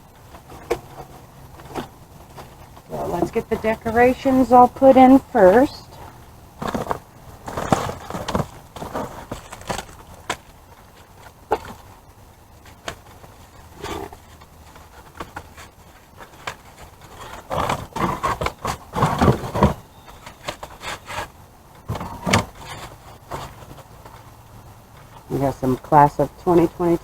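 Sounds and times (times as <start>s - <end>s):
packaging rustling: 6.5s - 11.9s.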